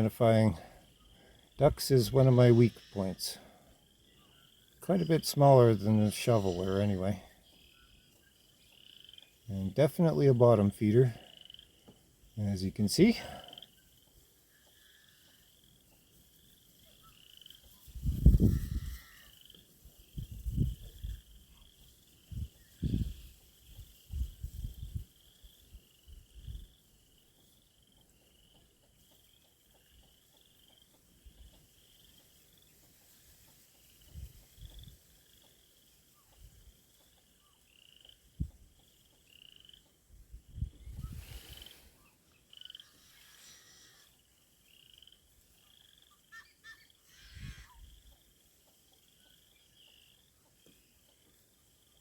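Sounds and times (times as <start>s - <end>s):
frogs croaking in chorus: 0.0s - 12.4s, 13.0s - 33.1s, 33.9s - 52.0s
wind thumping on microphone: 18.0s - 18.9s, 40.5s - 41.6s.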